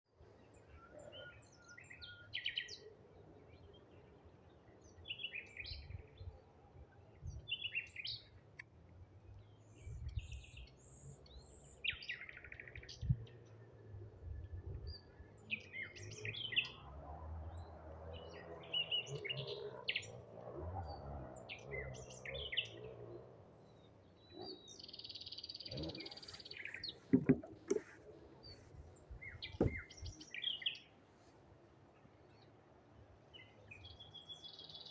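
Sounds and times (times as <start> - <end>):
songbirds chirping: 0.1 - 34.9
sharp knocks: 27.1 - 28.0, 29.6 - 29.9.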